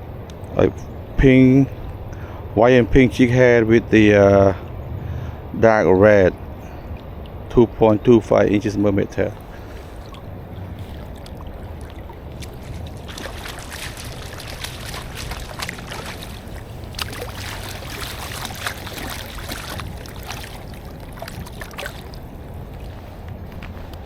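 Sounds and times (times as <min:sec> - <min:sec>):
wind rumble on microphone: 0:00.0 - 0:24.0
river water rushing: 0:09.2 - 0:24.0.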